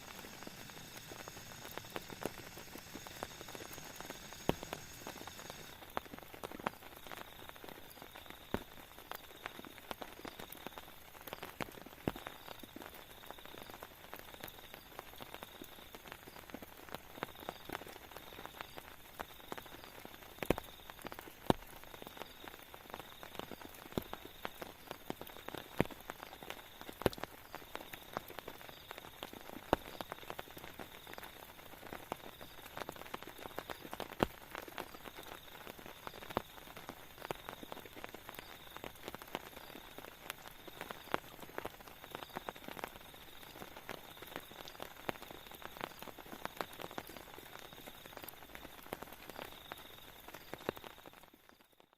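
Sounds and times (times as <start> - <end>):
rain falling: 0.0 - 51.8
raindrops tapping surface: 0.0 - 51.8.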